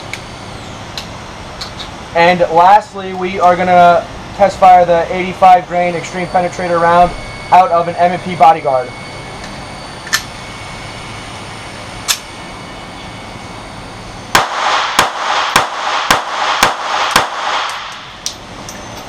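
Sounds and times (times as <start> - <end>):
pistol shots: 14.4 - 18.2.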